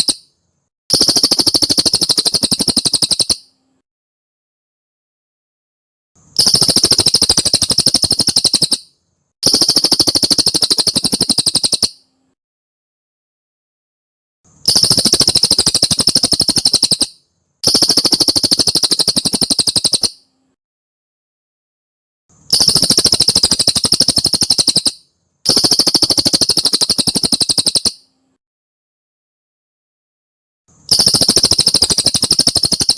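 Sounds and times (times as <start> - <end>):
bird trilling: 0.9 - 3.5, 6.4 - 12.0, 14.7 - 20.2, 22.5 - 28.1, 30.9 - 32.9.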